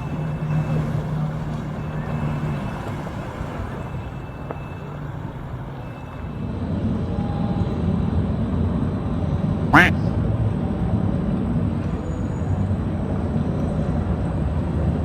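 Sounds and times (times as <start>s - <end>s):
engine idling: 0.0s - 6.5s.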